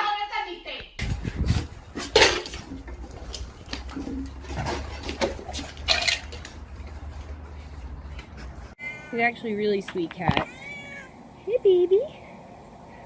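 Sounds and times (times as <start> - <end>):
hard objects clicking and clattering: 1.9 - 7.4.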